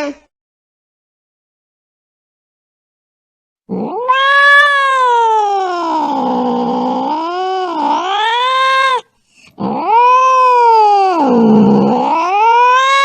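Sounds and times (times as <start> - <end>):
cat yowling: 3.7 - 13.0.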